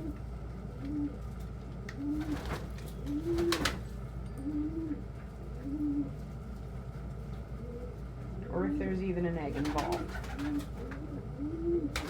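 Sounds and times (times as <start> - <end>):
pigeon cooing: 0.0 - 1.2, 1.9 - 3.8, 4.4 - 6.2, 7.6 - 8.0, 9.6 - 12.0.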